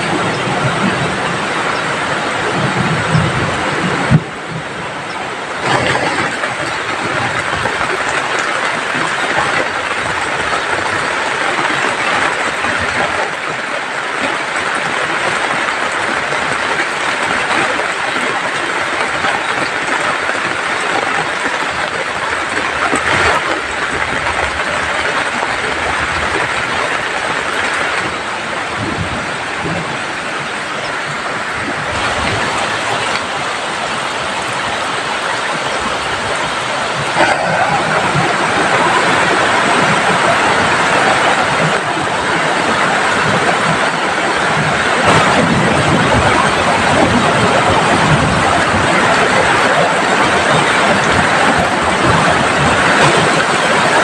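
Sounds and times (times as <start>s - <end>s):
heavy rain falling: 0.0s - 54.0s
running water: 0.0s - 54.0s.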